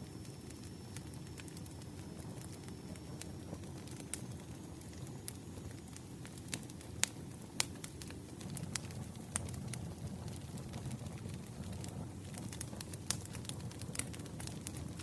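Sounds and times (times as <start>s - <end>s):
hiss of burning logs: 0.0s - 15.0s
wood fire crackling: 0.0s - 15.0s.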